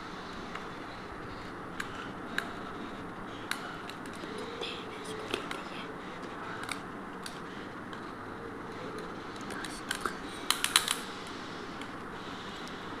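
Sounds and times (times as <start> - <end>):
plastic parts clicking and tapping: 9.4 - 11.0
sharp clicks: 9.4 - 11.1.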